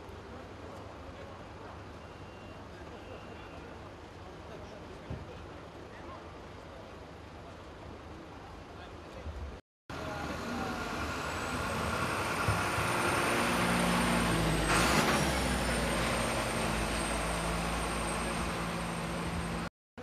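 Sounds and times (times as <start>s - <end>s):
heavy vehicle engine running: 9.9s - 19.7s.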